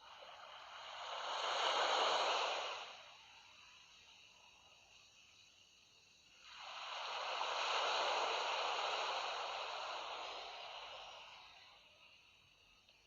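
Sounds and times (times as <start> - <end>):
sea waves on a shore: 0.0 - 3.4, 6.4 - 11.7.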